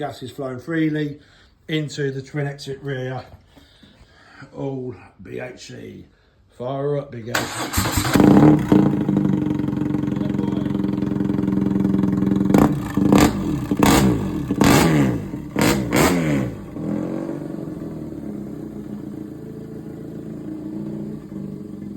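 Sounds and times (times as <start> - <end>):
motorcycle engine idling and revving: 7.4 - 21.9.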